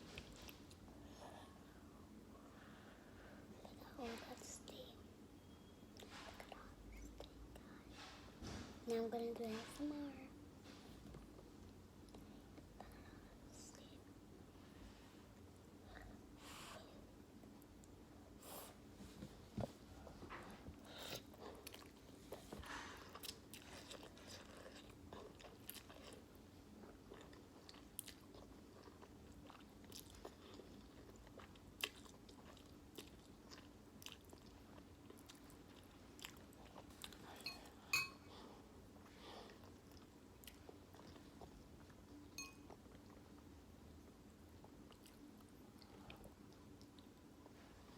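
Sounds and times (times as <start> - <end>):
faint steady hum: 0.0 - 47.9
person chewing noodles: 20.9 - 38.1, 38.9 - 43.4, 44.5 - 47.6.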